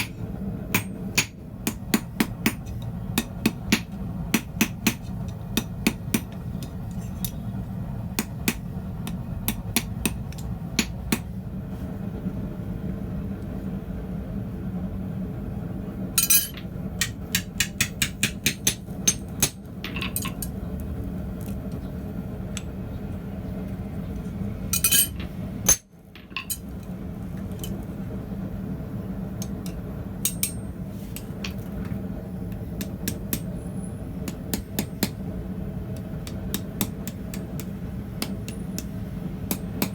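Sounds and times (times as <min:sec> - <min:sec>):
hammer striking steel on anvil: 0:00.0 - 0:07.4, 0:16.2 - 0:20.5, 0:24.8 - 0:26.7, 0:29.4 - 0:31.3, 0:32.8 - 0:33.6.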